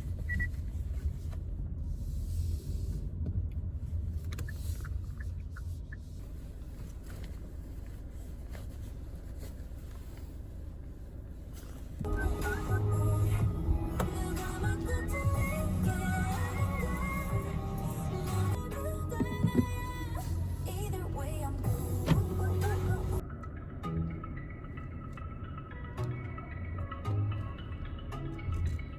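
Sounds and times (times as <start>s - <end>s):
road and engine rumble in car: 0.0s - 28.9s
music: 12.0s - 28.9s.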